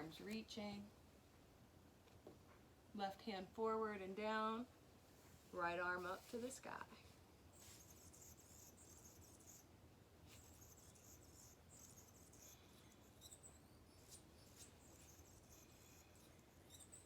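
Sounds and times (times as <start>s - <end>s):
faint insect trills: 7.4s - 17.0s.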